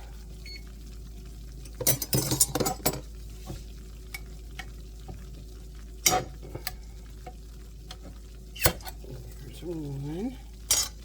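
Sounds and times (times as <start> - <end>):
roux sizzling in a skillet: 0.0 - 11.0
glass jars clattering: 1.8 - 3.0.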